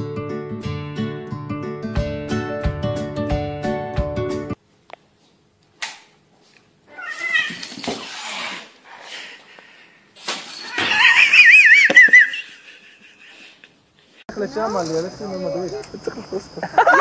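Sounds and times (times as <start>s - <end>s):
cat yowling: 6.9s - 8.5s, 10.6s - 11.9s.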